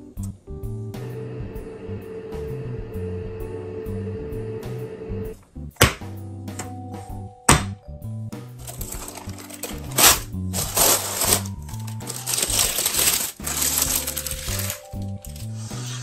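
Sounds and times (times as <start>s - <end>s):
background music: 0.0s - 16.0s
kitchen rustling: 8.6s - 15.6s.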